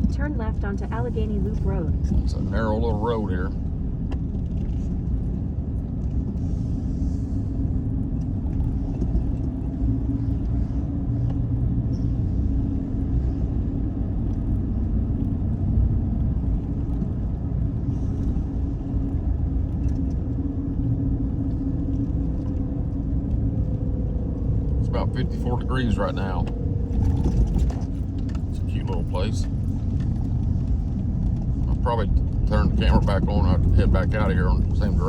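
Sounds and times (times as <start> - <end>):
car engine and tyres rumbling: 0.0 - 35.0.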